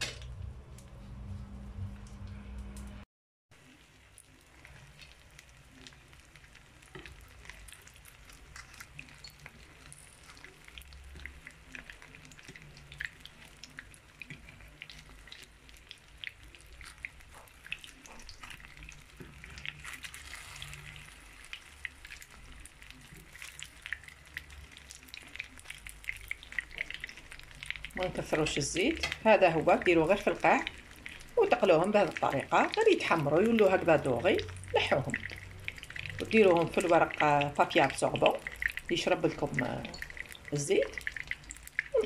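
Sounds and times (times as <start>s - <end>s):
pastry sizzling in oil: 3.6s - 42.0s.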